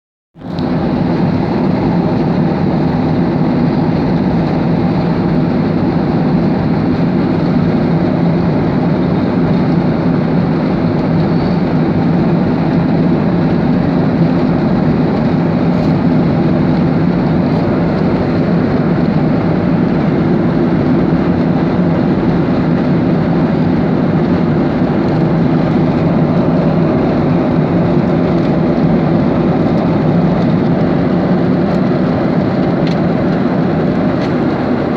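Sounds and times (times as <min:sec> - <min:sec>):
airplane drone: 0:00.4 - 0:34.9.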